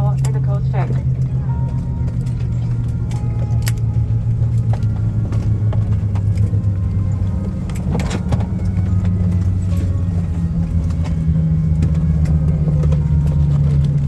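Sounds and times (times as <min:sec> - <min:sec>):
airplane cabin rumble and hum: 0:00.0 - 0:14.0.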